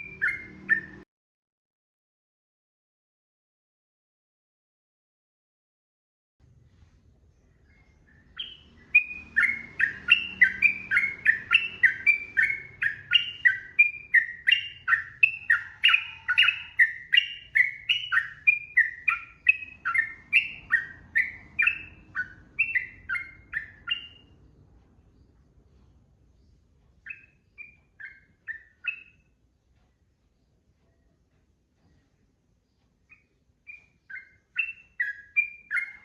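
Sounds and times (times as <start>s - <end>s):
bulbul singing whistled notes: 0.0s - 1.0s, 7.6s - 24.4s, 27.0s - 29.3s, 33.1s - 36.0s.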